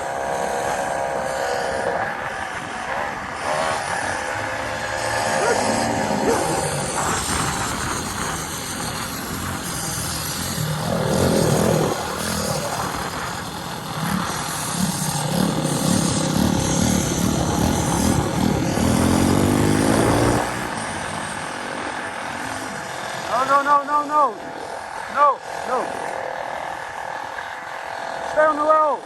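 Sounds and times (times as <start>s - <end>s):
small gasoline engine revving: 0.0s - 29.0s.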